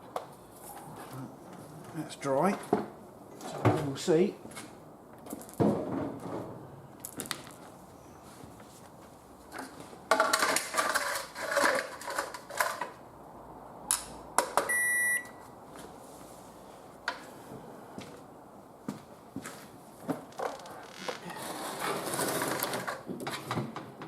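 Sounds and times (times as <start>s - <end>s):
clattering handling noise: 9.5s - 13.0s
microwave beep: 14.7s - 15.4s.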